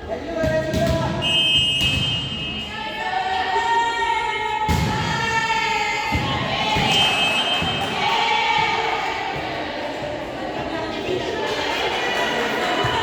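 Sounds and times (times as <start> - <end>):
spectators cheering and chanting: 2.4 - 13.0.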